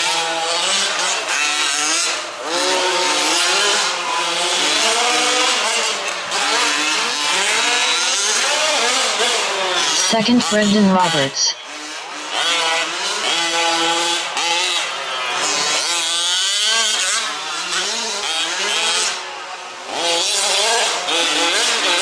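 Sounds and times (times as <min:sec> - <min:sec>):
small engines revving and whining: 0:00.0 - 0:10.0, 0:11.6 - 0:22.0.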